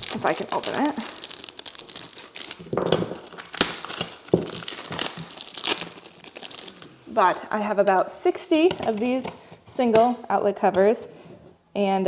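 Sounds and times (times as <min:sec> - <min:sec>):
plastic packaging crinkling and tearing: 0:00.0 - 0:07.0.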